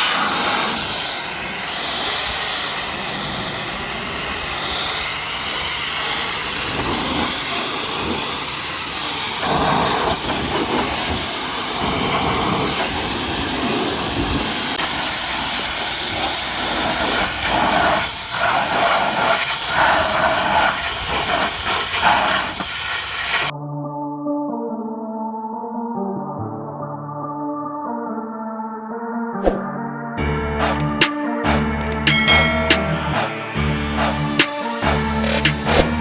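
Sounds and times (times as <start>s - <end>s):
pressure washer spray hissing: 0.0s - 23.5s.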